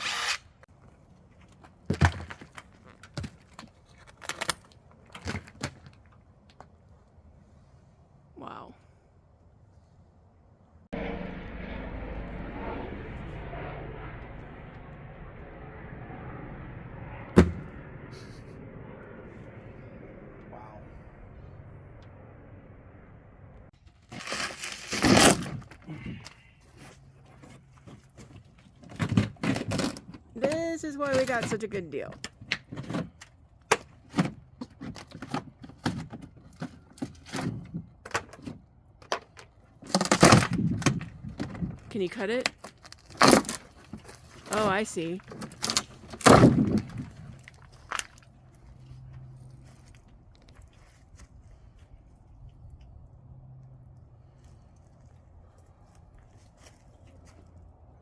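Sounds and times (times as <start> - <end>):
sharp bang: 11.0 - 23.2
rotted wood being pried off: 24.1 - 26.5, 27.4 - 31.5, 32.2 - 41.8, 42.4 - 44.2, 45.3 - 48.2.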